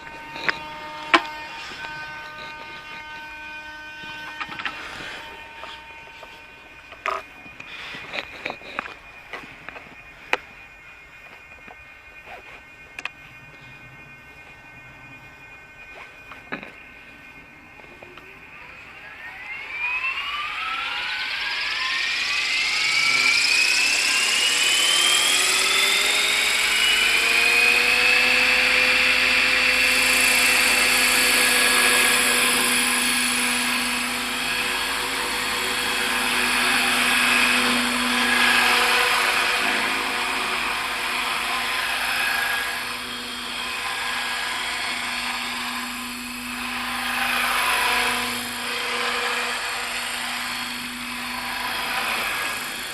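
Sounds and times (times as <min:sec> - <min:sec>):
rc helicopter motor whine: 0:00.0 - 0:52.9.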